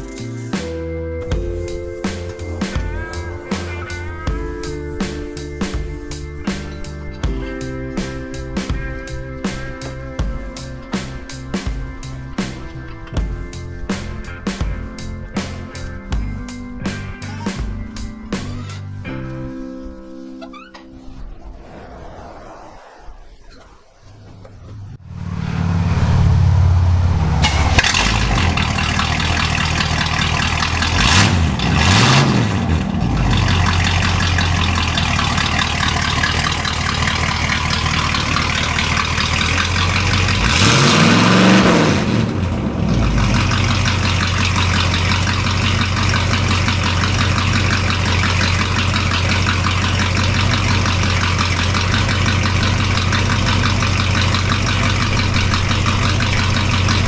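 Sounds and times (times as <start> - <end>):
loud pickup engine revving: 25.0 - 57.0
pickup engine idling: 25.2 - 57.0.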